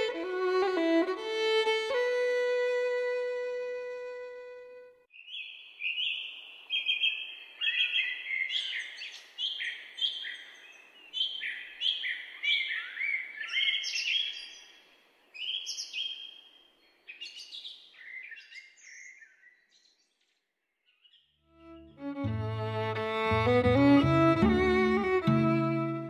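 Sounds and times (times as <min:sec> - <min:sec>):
birds chirping: 0:05.1 - 0:20.2.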